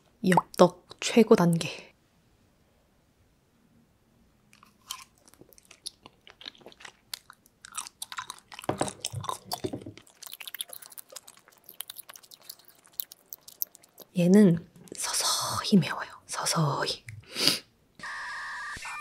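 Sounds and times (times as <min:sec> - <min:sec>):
close-miked chewing: 0:04.5 - 0:15.2.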